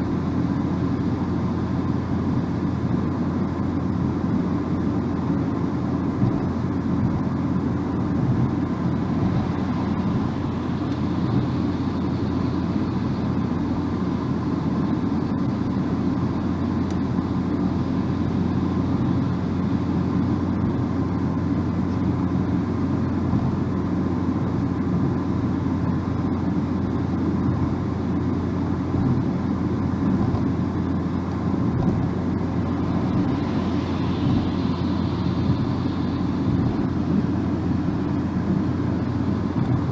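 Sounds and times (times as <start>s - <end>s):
low engine hum: 0.0s - 39.9s
road and tyre noise: 0.0s - 39.9s.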